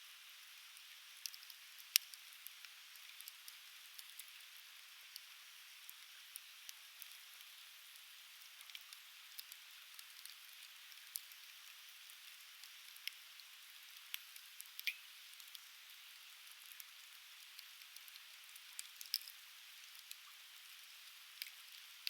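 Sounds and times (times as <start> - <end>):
soft fire hiss: 0.0 - 22.0
fire crackling and popping: 14.0 - 15.6, 16.4 - 20.3.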